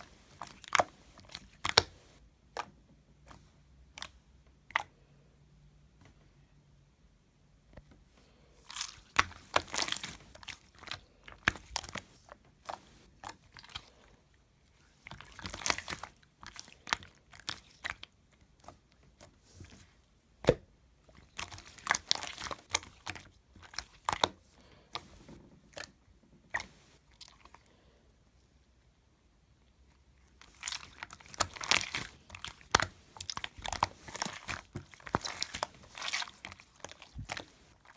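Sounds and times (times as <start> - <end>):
slime crackling and popping: 8.7 - 12.1, 21.2 - 25.0, 30.4 - 37.9.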